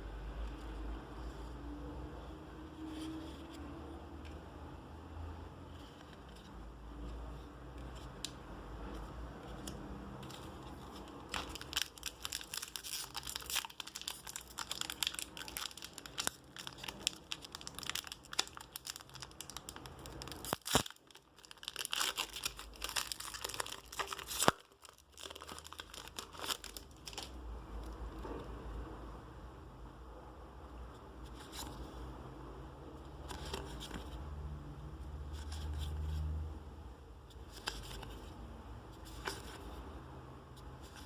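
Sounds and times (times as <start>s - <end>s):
plastic packaging crinkling: 10.2s - 27.4s
plastic packaging tearing: 11.1s - 27.4s.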